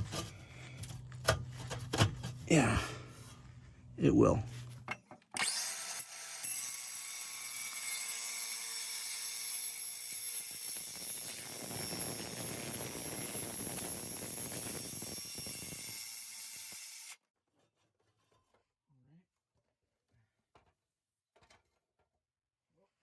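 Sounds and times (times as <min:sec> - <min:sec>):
power cutting tool whining: 0:05.4 - 0:17.2.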